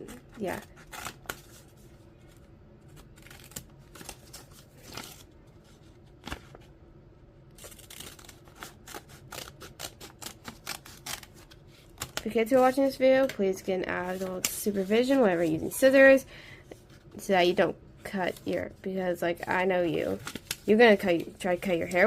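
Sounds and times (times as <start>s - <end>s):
scissors snipping paper: 7.6s - 12.4s.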